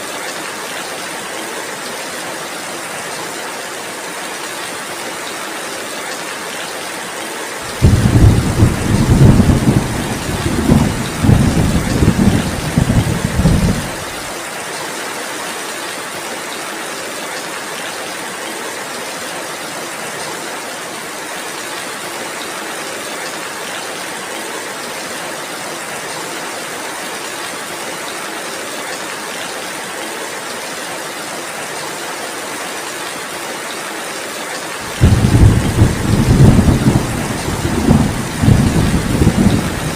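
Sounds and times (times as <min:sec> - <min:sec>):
heavy rain: 0:00.0 - 0:39.9
thunder rumble: 0:07.7 - 0:14.2, 0:34.9 - 0:39.9.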